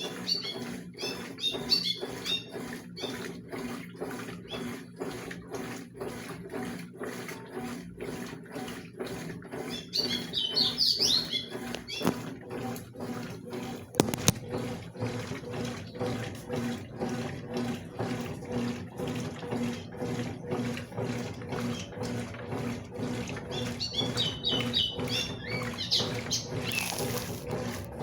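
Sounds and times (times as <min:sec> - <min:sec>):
washing machine motor hum: 0:00.0 - 0:28.0
water sloshing: 0:00.0 - 0:28.0.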